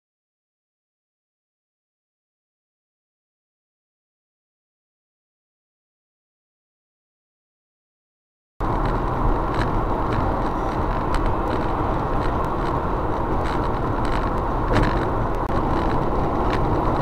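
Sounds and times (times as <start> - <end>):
car driving rumble: 8.6 - 17.0.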